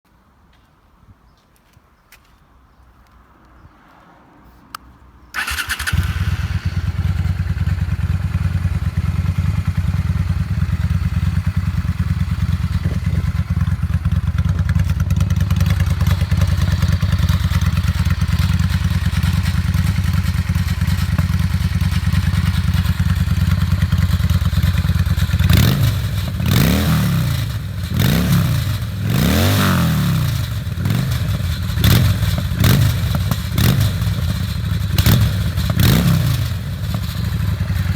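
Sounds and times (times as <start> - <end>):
motorcycle engine idling: 5.4 - 29.1, 30.2 - 37.9
motorcycle engine revving: 5.4 - 37.9.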